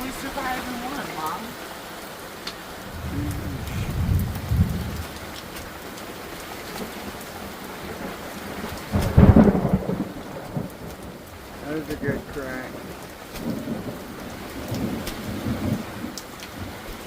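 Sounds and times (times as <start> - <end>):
steady rain: 0.0 - 17.0
thunder rumble and crack: 2.7 - 17.0.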